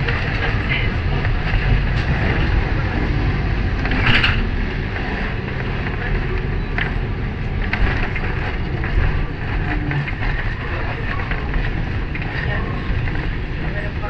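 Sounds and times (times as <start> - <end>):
tram rumbling on rails: 0.0 - 14.0.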